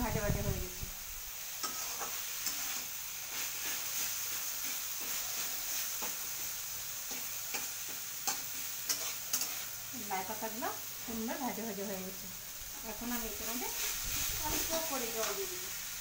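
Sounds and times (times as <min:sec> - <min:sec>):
vegetables sizzling in a pan: 0:00.0 - 0:16.0
metal spatula scraping pan: 0:01.6 - 0:06.3, 0:07.1 - 0:09.8.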